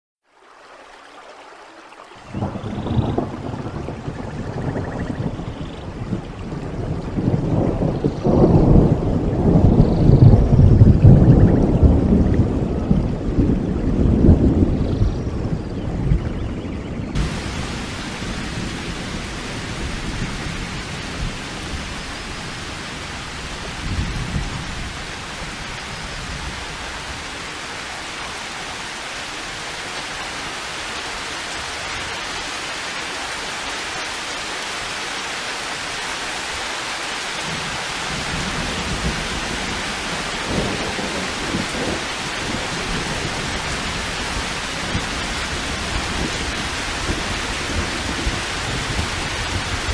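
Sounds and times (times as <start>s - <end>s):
steady rain: 0.3s - 15.6s, 17.1s - 49.9s
thunder rumbling: 17.2s - 34.0s, 37.4s - 49.9s.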